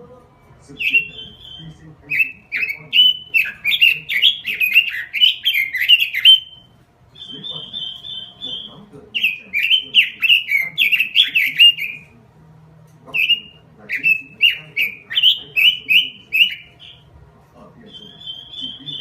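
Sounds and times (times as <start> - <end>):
bird singing whistled notes: 0.8 - 12.1, 13.2 - 17.0, 17.9 - 19.0.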